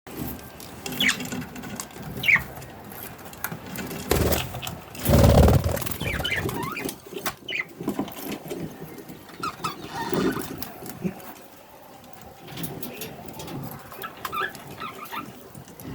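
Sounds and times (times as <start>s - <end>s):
low rustles: 4.2s - 6.6s.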